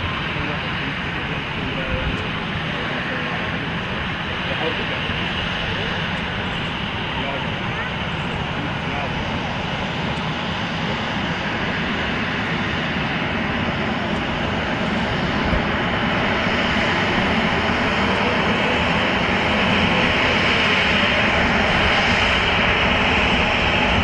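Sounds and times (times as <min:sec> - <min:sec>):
airliner engine rumble: 0:00.0 - 0:24.0.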